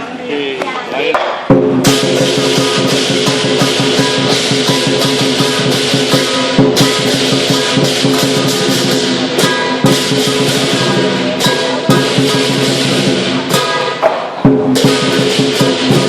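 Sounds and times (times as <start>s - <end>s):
drum beating: 1.1s - 16.0s
cymbals clashing: 1.4s - 16.0s
gong ringing: 1.8s - 14.0s.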